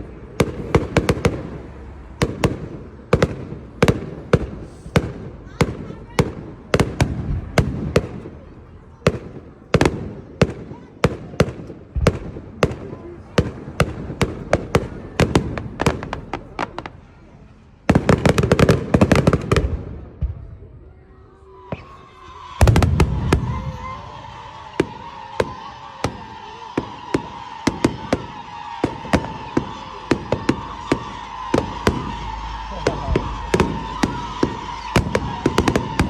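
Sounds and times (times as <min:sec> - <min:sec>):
rapid fireworks crackling: 0:00.0 - 0:20.4, 0:21.5 - 0:36.0
fireworks bangs and cracks: 0:00.0 - 0:20.6, 0:21.6 - 0:36.0
steady high whistle: 0:21.0 - 0:36.0.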